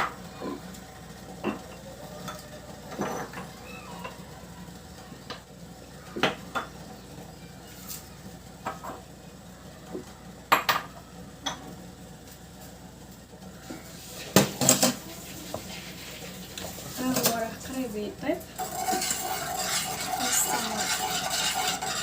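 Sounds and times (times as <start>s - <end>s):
utensils knocking against pots: 14.4s - 15.0s, 18.6s - 22.0s.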